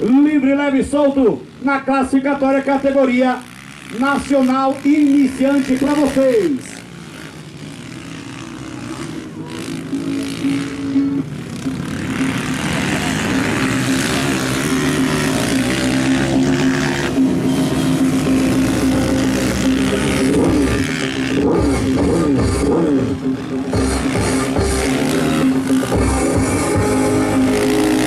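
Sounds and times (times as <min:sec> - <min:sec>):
dirt bike engines racing: 0:00.0 - 0:28.0.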